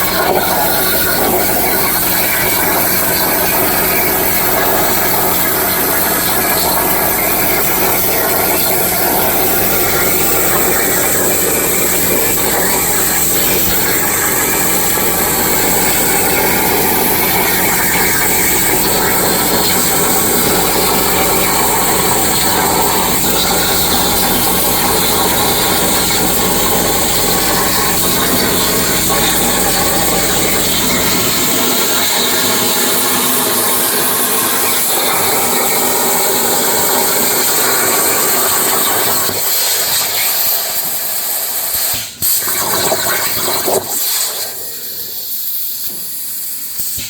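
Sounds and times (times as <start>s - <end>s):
plasma cutter hissing: 0.0s - 47.0s.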